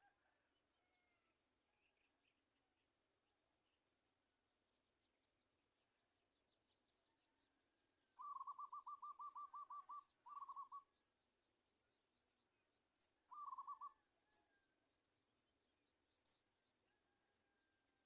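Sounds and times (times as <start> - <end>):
bird calling in quick trills: 8.2 - 10.9, 13.3 - 14.0.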